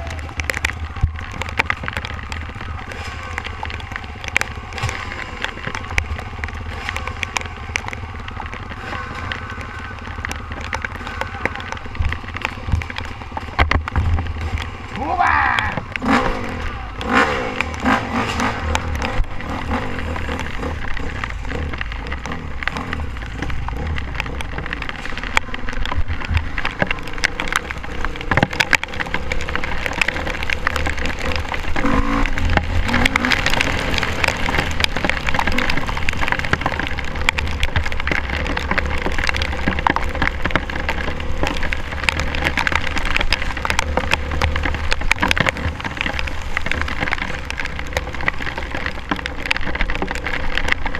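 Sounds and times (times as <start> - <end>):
rain pattering on camera housing: 0.0 - 50.9.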